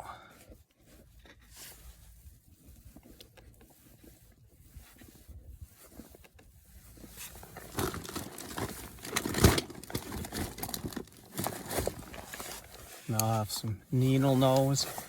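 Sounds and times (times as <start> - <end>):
hands handling tools: 5.9 - 15.0.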